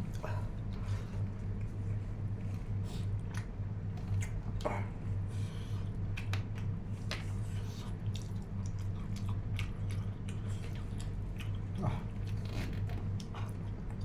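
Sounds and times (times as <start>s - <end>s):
steady low hum: 0.0s - 14.0s
person chewing: 6.1s - 12.5s.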